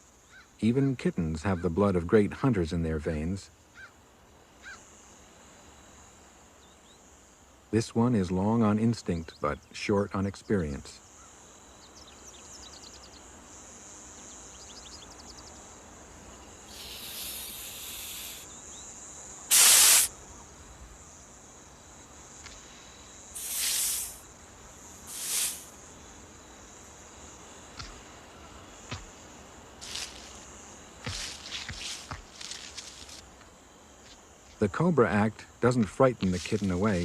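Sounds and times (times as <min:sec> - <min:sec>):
high insect drone: 0:00.0 - 0:37.0
snake hissing: 0:16.7 - 0:18.5, 0:19.5 - 0:20.1, 0:23.3 - 0:24.3, 0:24.9 - 0:25.8.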